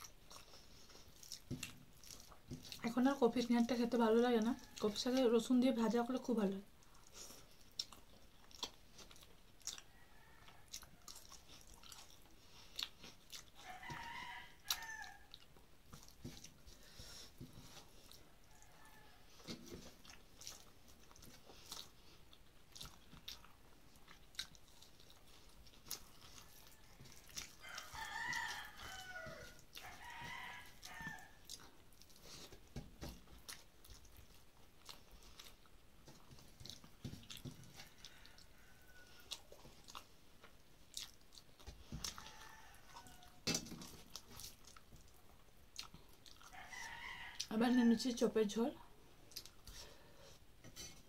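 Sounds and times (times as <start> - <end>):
person chewing food: 0.0 - 3.1, 6.6 - 47.5, 48.9 - 51.0
rooster crowing: 9.9 - 11.2, 13.6 - 15.4, 18.4 - 19.3, 26.4 - 31.4, 37.6 - 39.4, 42.0 - 43.5, 46.5 - 47.8.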